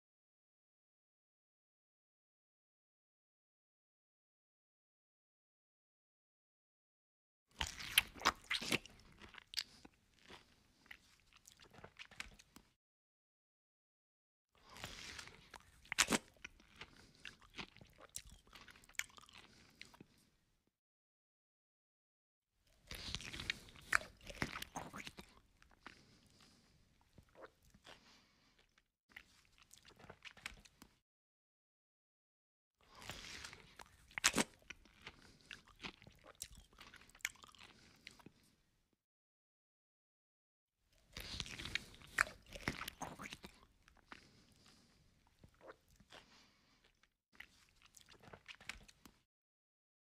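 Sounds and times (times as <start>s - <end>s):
man chewing with wet smacks: 7.6s - 12.7s, 14.6s - 20.2s, 22.9s - 31.0s, 32.9s - 38.4s, 41.0s - 49.2s.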